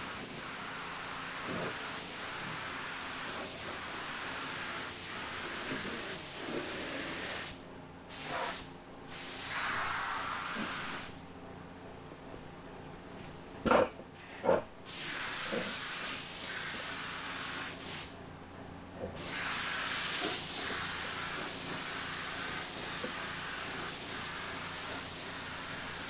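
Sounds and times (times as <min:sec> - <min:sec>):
spray gun bursts: 0:08.2 - 0:11.2, 0:14.9 - 0:18.2, 0:19.2 - 0:26.0
spray gun hissing: 0:09.1 - 0:11.1, 0:14.9 - 0:18.2, 0:19.2 - 0:26.0.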